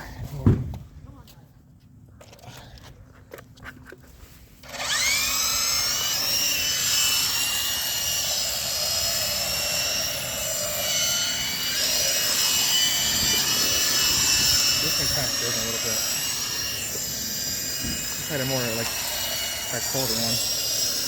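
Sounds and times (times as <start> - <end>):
toy helicopter motor whining: 4.6 - 21.0.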